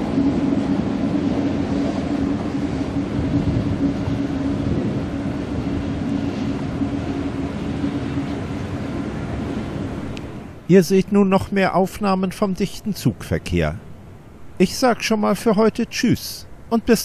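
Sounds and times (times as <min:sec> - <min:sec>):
train wheels rumbling on rail: 0:00.0 - 0:10.7
constant train hum: 0:00.0 - 0:17.0.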